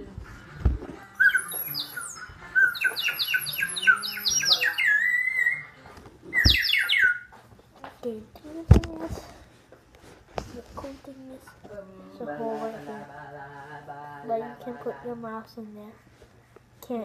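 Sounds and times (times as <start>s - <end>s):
water bird whistle trilling: 1.2s - 5.6s, 6.3s - 7.3s.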